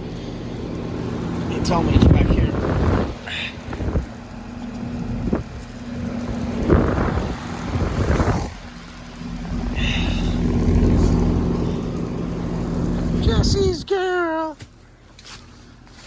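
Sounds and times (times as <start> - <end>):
air conditioner unit humming: 0.0 - 16.0
handling knocks and rustles: 14.6 - 16.0.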